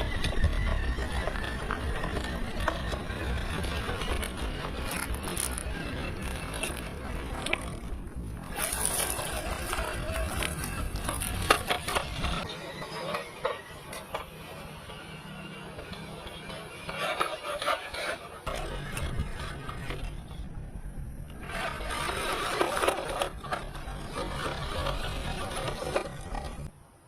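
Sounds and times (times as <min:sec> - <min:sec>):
tyres crunching over dirt and stones: 0:00.0 - 0:12.5
electric motor and gearbox whirring: 0:00.0 - 0:26.7.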